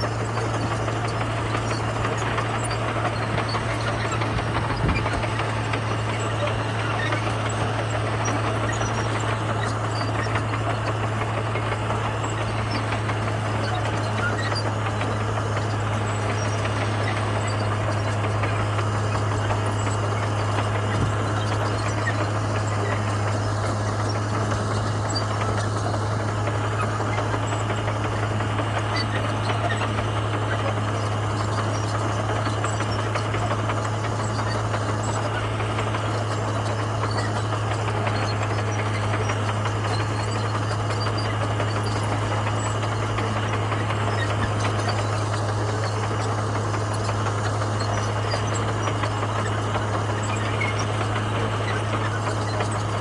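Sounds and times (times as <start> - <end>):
bulldozer diesel engine humming: 0.0 - 53.0.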